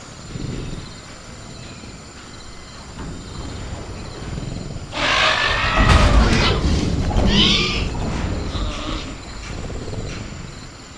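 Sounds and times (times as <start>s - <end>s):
crickets chirring: 0.0s - 10.9s
dinosaur growling and shrieking: 3.4s - 10.7s.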